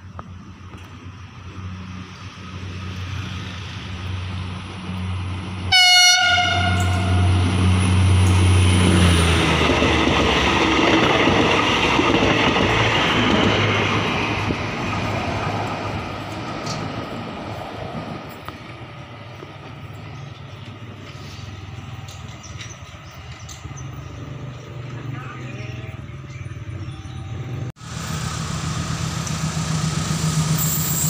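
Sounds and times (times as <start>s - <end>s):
train wheels rumbling on rails: 0.0s - 31.0s
train horn blast: 5.7s - 7.5s
diesel engine drone: 23.4s - 31.0s.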